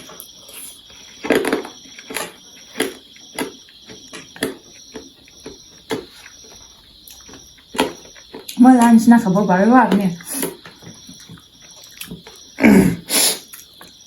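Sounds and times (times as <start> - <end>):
noodles being chewed: 0.0 - 8.6.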